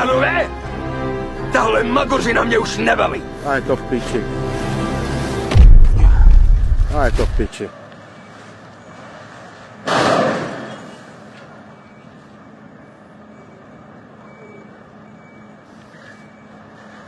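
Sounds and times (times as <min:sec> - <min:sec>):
loud bang or crash: 0:05.5 - 0:07.5.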